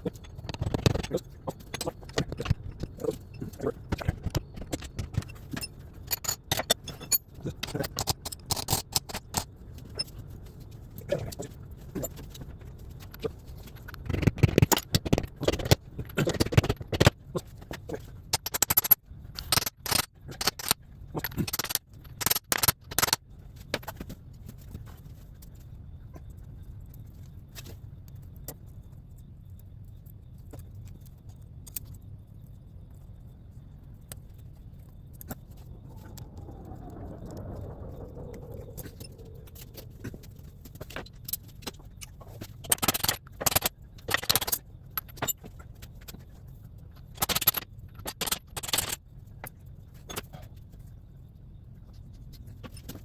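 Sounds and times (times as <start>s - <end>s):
metal tools clinking and scraping: 0.1s - 8.8s.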